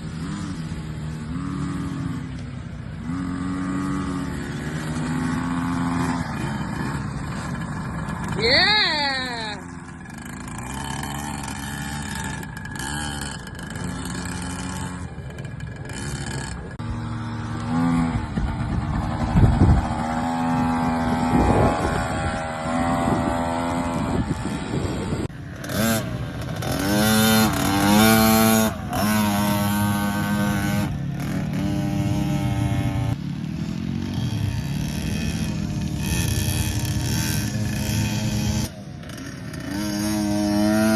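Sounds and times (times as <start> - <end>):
motocross bike engines revving: 0.0 - 40.9.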